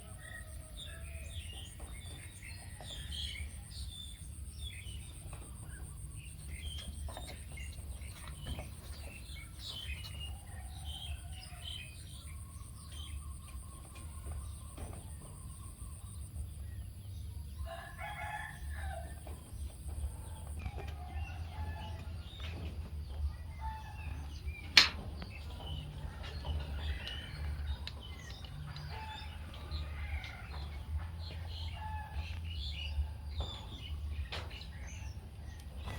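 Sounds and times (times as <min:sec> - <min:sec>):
birds calling and chirping: 0:00.0 - 0:35.9
steady low hum: 0:19.2 - 0:35.9.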